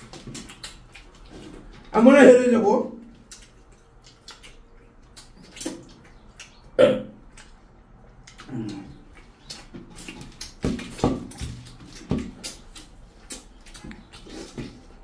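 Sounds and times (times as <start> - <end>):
wet chewing and mouth clicks: 0.0 - 1.9, 3.0 - 15.0
throaty vocal sounds: 6.8 - 7.2, 8.4 - 9.2.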